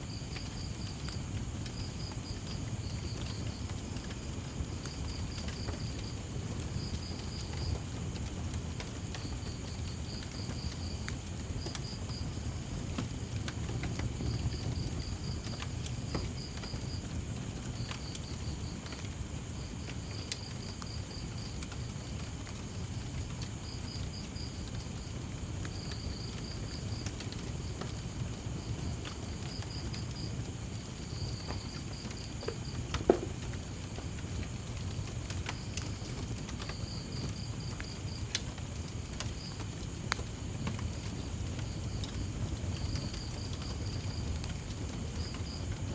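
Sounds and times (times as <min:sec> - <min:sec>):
crickets chirping: 0:00.0 - 0:45.9
wood fire crackling and popping: 0:00.1 - 0:45.9.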